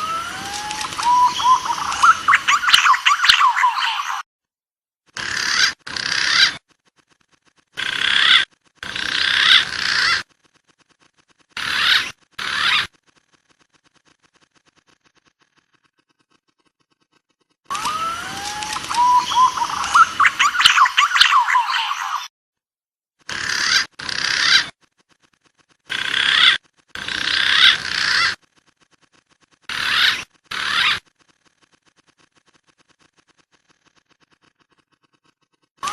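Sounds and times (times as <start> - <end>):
pigeon calls: 0.0 - 4.2, 5.2 - 6.7, 7.6 - 10.3, 11.6 - 13.0, 17.1 - 22.3, 23.3 - 24.8, 25.9 - 28.4, 29.7 - 31.1
recorded pigeon calls: 0.0 - 4.2, 17.7 - 22.3.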